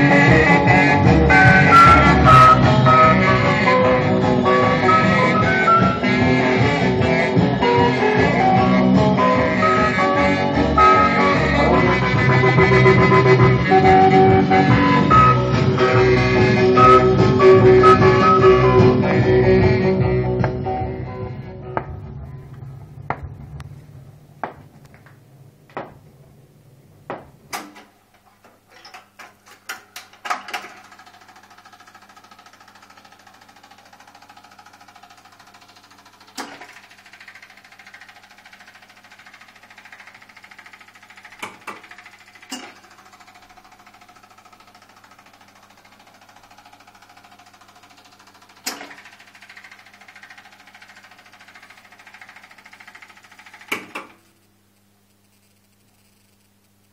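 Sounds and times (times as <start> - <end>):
stylus ticking in run-out groove: 0.0 - 20.6, 28.0 - 56.9
low hum: 0.0 - 27.6
mechanical whirr: 22.2 - 56.9
mechanism clicks and knocks: 27.1 - 54.3.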